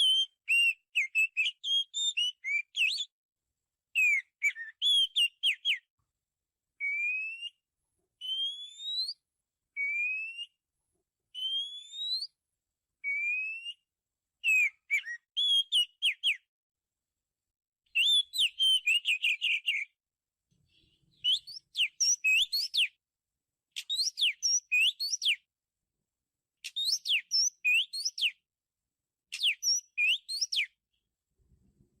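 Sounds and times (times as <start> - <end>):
bird whistling song: 0.0 - 3.1, 3.9 - 5.9, 6.8 - 7.6, 8.2 - 10.6, 11.3 - 12.4, 13.0 - 16.5, 17.9 - 20.0, 20.7 - 23.0, 23.8 - 25.5, 26.6 - 28.4, 29.3 - 30.8.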